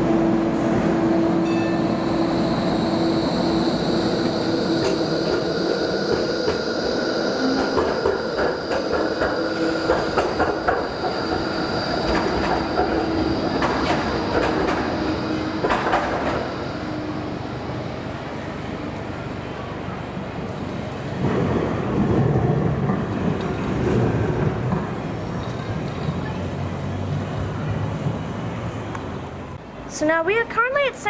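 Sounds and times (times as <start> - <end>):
tram wheels whining and squealing: 0.0 - 22.0.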